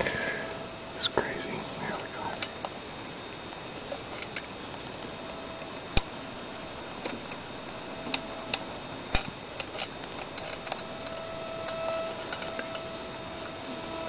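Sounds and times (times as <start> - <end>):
electronic interference hum: 0.0 - 14.0.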